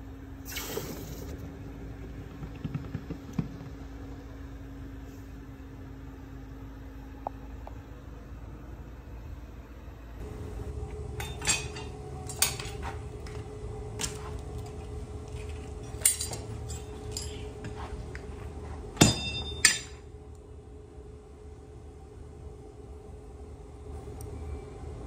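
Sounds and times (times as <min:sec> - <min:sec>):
steady low hum: 0:00.0 - 0:25.0
ringing metal clanks: 0:11.2 - 0:12.8, 0:15.8 - 0:17.6, 0:19.0 - 0:20.1
metal clanks and taps: 0:11.2 - 0:13.4, 0:15.3 - 0:18.3.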